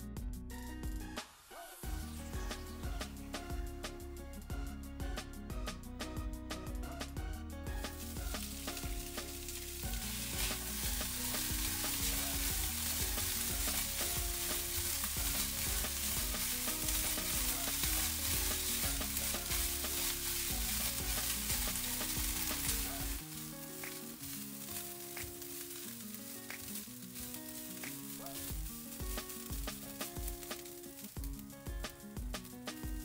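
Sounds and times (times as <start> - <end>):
soft background music: 0.0 - 33.0
rice sizzling in hot oil: 6.6 - 33.0
spatula scraping wok: 7.8 - 30.8.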